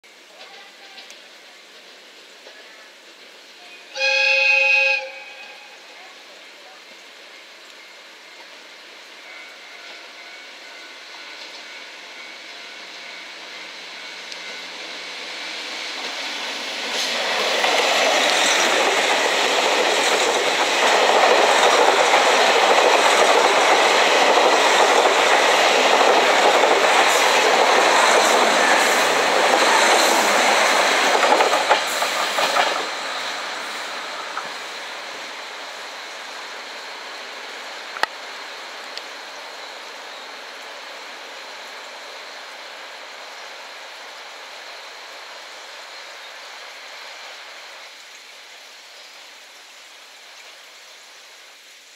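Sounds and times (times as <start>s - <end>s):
train passing at speed: 0.1s - 51.4s
wheels clattering over rail joints: 16.9s - 33.0s.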